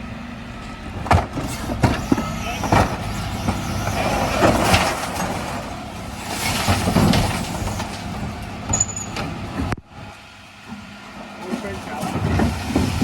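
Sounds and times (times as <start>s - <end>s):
refuse lorry machinery rattling: 0.0s - 13.0s.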